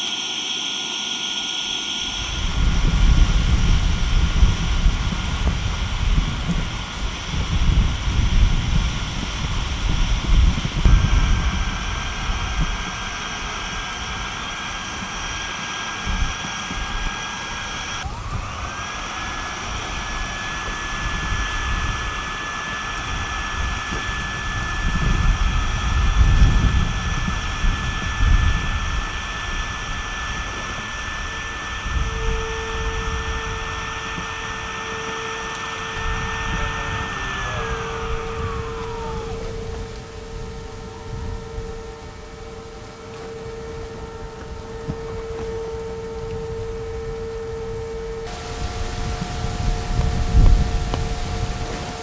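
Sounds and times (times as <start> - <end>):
electric air pump whining: 0.0 - 52.0
gusty wind rumble: 2.1 - 52.0.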